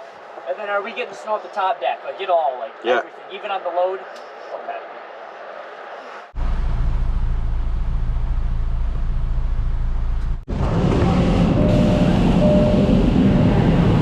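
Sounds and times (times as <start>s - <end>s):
truck engine rumbling: 6.3s - 14.0s.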